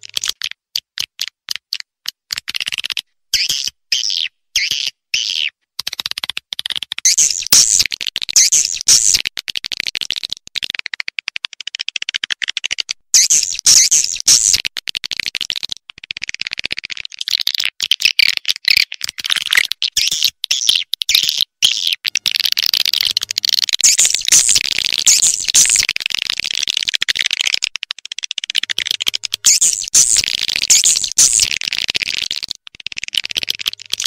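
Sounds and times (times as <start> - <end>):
swiftlets chattering twitters: 7.0 - 7.8, 22.3 - 34.0.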